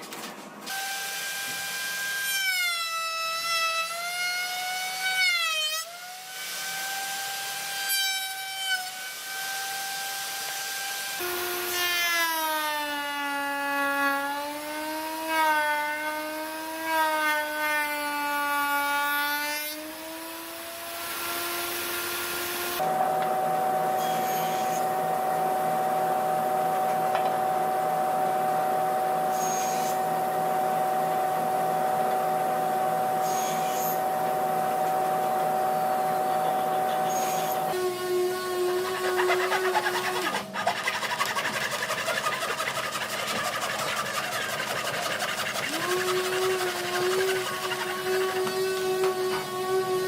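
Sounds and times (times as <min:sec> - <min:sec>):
power tool motor whining: 0:19.9 - 0:27.7, 0:28.4 - 0:50.0.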